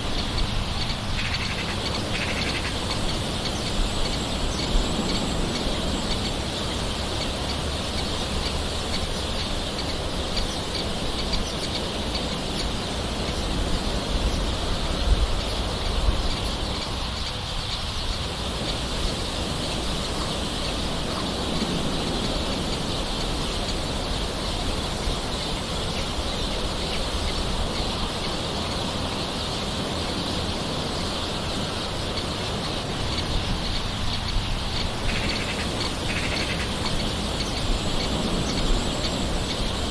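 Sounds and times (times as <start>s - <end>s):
birds calling: 0.0s - 39.9s
steady rain hiss: 0.0s - 39.9s.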